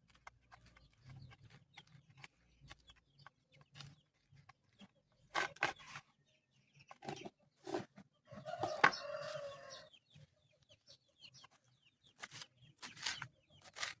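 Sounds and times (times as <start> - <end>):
chickens clucking: 0.2 - 14.0
drawn-out chicken call: 8.3 - 10.0.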